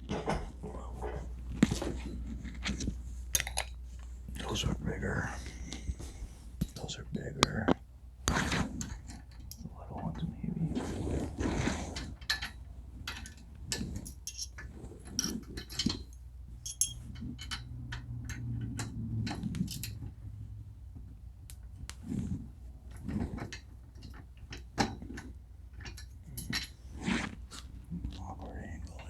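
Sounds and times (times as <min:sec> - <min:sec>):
metal tools clicking and clinking: 0:00.1 - 0:05.9, 0:08.8 - 0:09.7, 0:12.2 - 0:20.2, 0:23.5 - 0:26.8.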